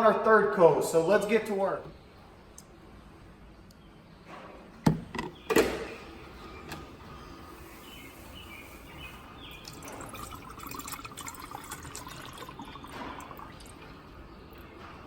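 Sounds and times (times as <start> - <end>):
liquid drips: 9.5 - 14.7
paint poured and stirred in cup: 9.6 - 14.0.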